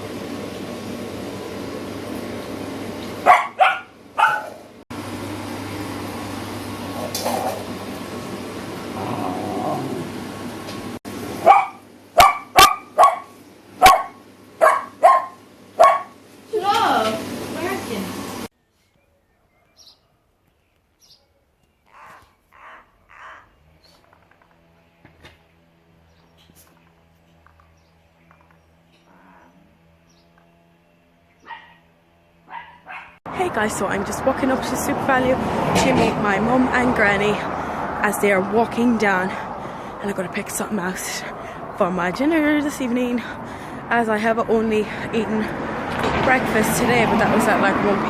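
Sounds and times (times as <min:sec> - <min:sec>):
crow cawing: 0:21.9 - 0:23.6
short loud animal calls: 0:21.9 - 0:23.6.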